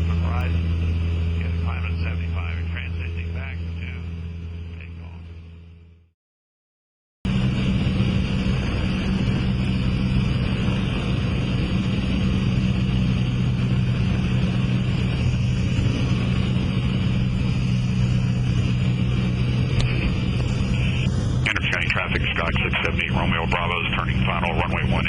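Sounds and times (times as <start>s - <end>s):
aircraft engine and propeller drone: 0.0s - 5.9s, 7.3s - 25.0s.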